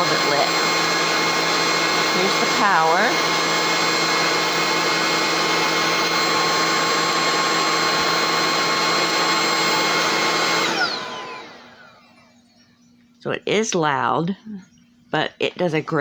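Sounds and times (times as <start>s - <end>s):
vacuum motor winding down: 0.0s - 12.4s
cordless vacuum running: 0.0s - 12.6s.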